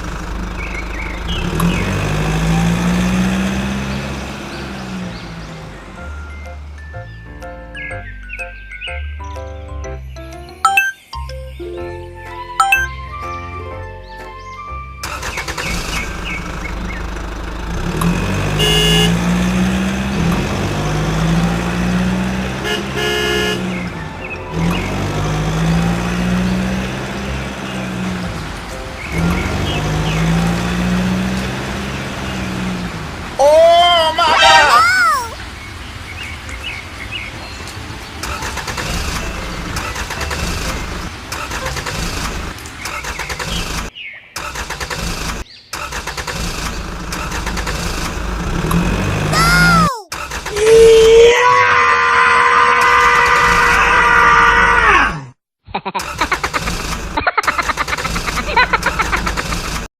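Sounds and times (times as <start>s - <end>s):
vehicle engine running: 0.0s - 6.8s, 15.0s - 34.2s, 35.4s - 43.9s, 46.0s - 49.7s, 56.3s - 59.9s
music: 6.0s - 15.2s, 24.0s - 24.5s
horn honking: 18.4s - 19.8s, 22.2s - 25.2s, 34.0s - 35.2s.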